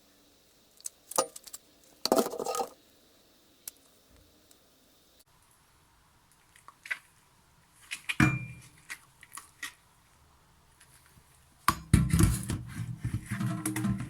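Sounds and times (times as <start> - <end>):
hard objects clicking and clattering: 1.1 - 2.8.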